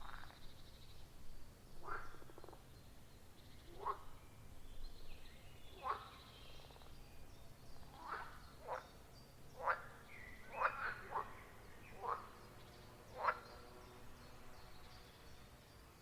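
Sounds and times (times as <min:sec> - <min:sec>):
frogs croaking: 0:01.8 - 0:02.6, 0:07.9 - 0:08.9, 0:09.6 - 0:12.5, 0:13.1 - 0:13.6.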